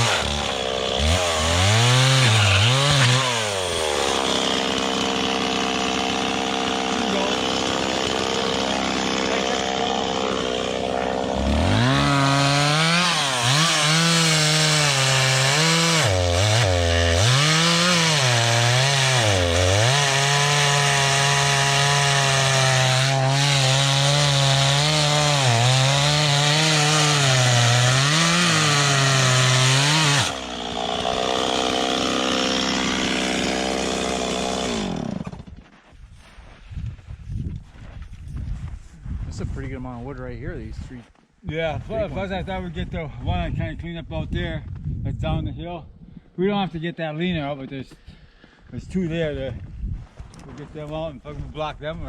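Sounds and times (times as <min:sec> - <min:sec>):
chainsaw cutting through log: 0:00.0 - 0:35.7.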